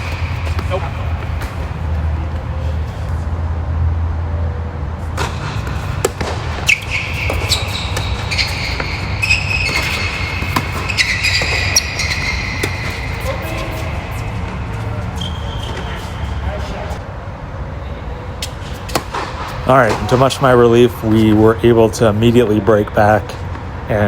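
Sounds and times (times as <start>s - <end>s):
high squeaks: 0.0s - 3.1s, 5.5s - 17.0s
tennis balls struck with rackets: 0.0s - 3.1s, 5.1s - 16.4s, 18.4s - 20.6s
steady low rumble: 0.0s - 6.6s.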